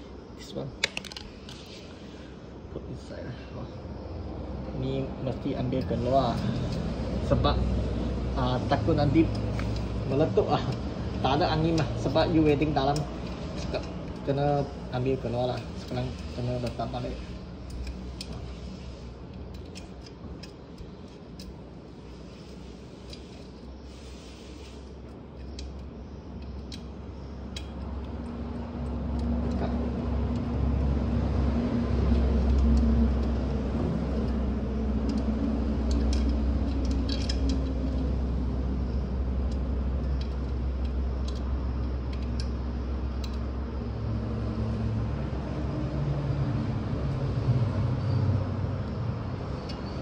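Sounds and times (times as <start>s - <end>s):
low mechanical hum: 0.0s - 50.0s
light clicks and clinks: 5.2s - 7.6s, 31.9s - 43.6s.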